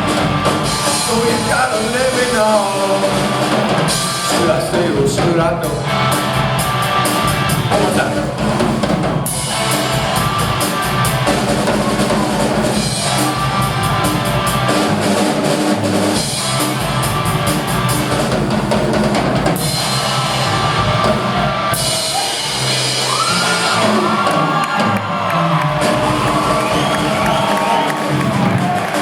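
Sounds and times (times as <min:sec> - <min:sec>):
drums with cymbals: 0:00.0 - 0:25.0
rock band playing: 0:00.0 - 0:29.0.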